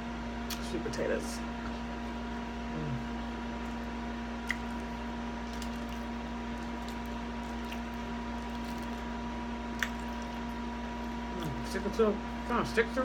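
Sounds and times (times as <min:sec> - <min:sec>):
steady background hum: 0:00.0 - 0:13.0
person chewing soft food: 0:01.6 - 0:11.7.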